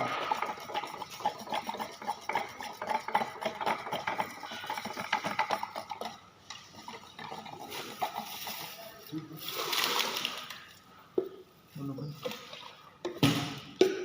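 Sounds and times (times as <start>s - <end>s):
paint being stirred: 0.0s - 13.1s.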